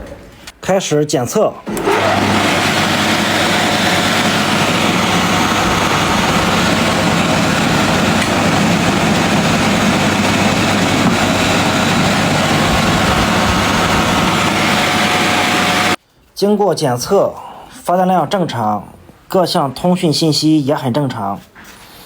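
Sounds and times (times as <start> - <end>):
alternator spinning whir: 1.7 - 16.0.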